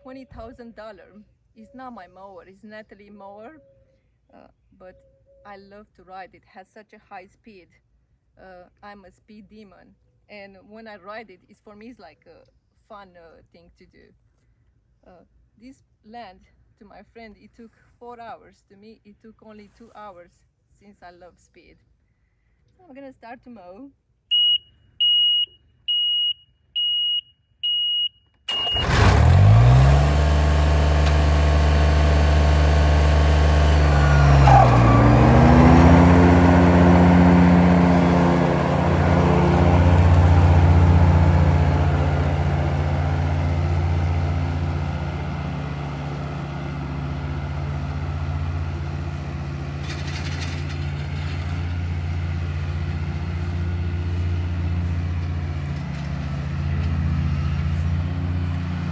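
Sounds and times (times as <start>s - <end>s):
short high beeps: 24.3s - 28.8s
lawn mower engine running: 28.5s - 58.9s.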